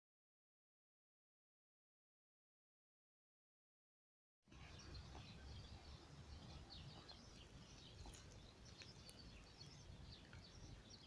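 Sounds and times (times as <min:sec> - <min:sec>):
small birds chirping: 0:04.5 - 0:11.0.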